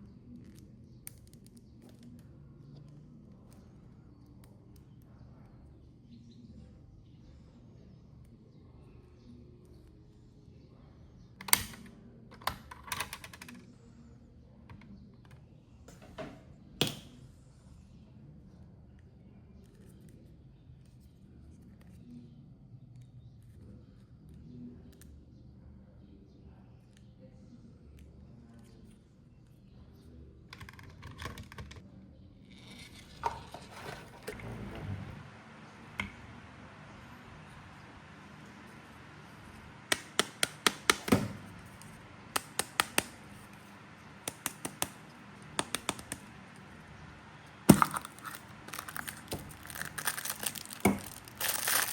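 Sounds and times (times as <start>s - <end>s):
plastic toy pieces clicking: 47.7s - 51.9s
small hard objects rattling: 47.7s - 51.9s.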